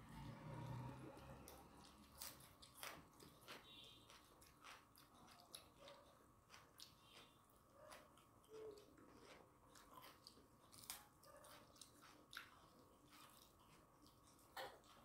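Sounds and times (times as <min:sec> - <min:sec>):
faint chewing and mouth sounds: 0:00.0 - 0:15.0.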